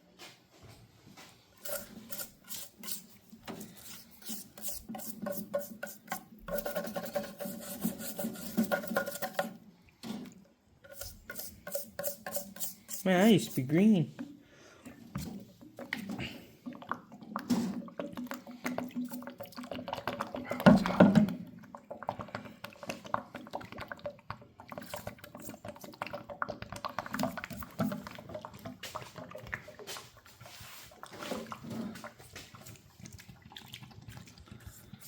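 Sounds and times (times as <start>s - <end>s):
liquid dripping and splashing: 15.2s - 35.0s.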